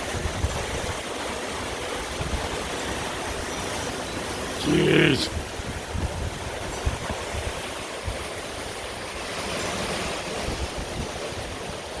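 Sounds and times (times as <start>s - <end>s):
strong gusting wind: 4.6s - 8.3s.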